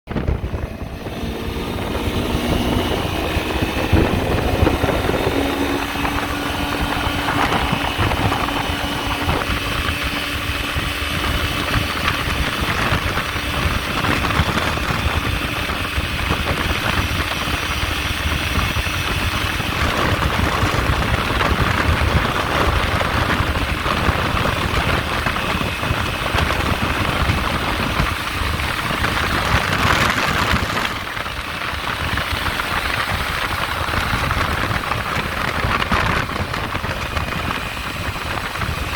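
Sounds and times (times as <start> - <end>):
scooter engine at full throttle: 0.0 - 38.9
wind noise rushing: 0.1 - 38.9.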